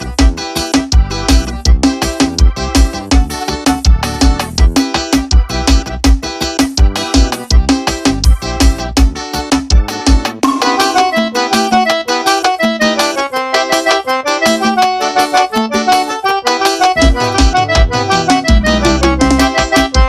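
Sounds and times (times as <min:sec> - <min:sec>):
bass and drums: 0:00.0 - 0:11.8, 0:16.5 - 0:20.0
accordion melody: 0:00.0 - 0:20.0.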